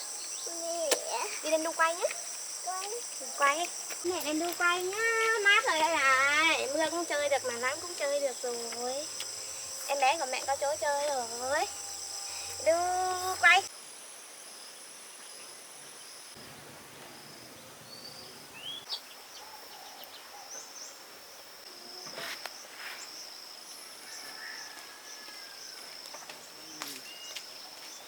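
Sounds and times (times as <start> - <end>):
high insect trill: 0.0 - 18.7.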